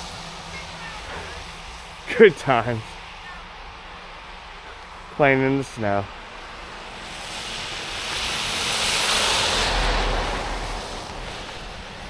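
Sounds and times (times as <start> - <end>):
vehicle passing on slush: 6.2 - 12.0.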